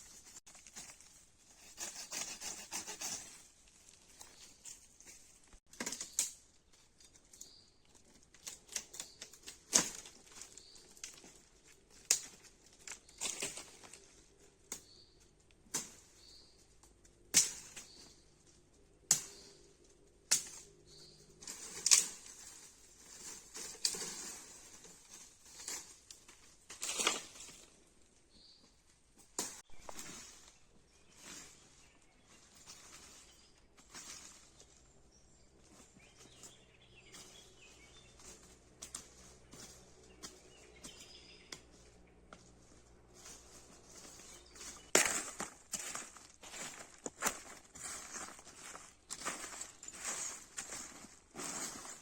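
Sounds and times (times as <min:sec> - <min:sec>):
sharp knocks and cracks: 0:05.7 - 0:06.4, 0:08.3 - 0:10.4, 0:12.0 - 0:13.7, 0:15.7 - 0:16.1, 0:16.8 - 0:18.1, 0:19.0 - 0:19.6, 0:20.2 - 0:20.8, 0:21.4 - 0:22.4.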